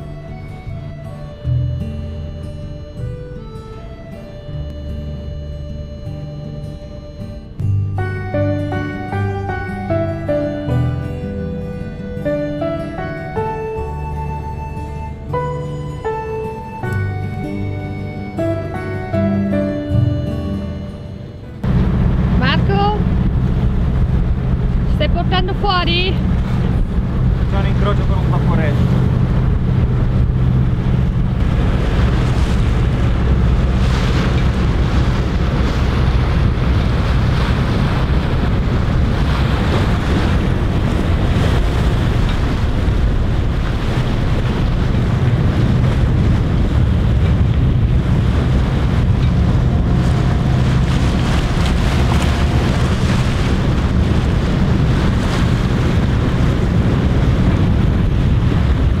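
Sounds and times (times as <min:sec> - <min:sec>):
boat engine drone: 0:00.0 - 0:59.0
water rushing: 0:21.5 - 0:59.0
wind buffeting microphone: 0:21.6 - 0:59.0.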